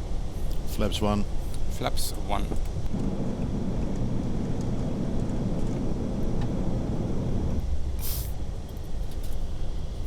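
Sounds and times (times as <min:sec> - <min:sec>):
airflow and engine rumble: 0:00.0 - 0:10.0
short burst of hiss: 0:08.0 - 0:08.4.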